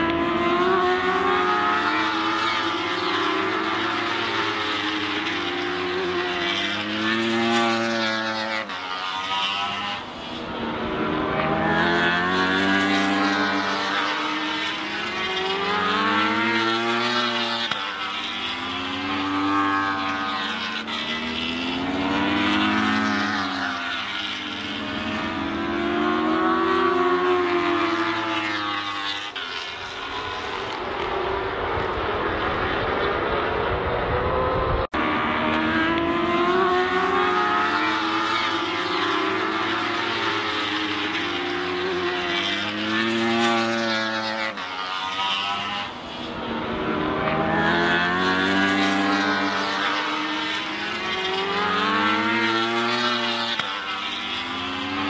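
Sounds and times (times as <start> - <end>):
motorcycle engines passing at high revs: 0.0 - 55.0.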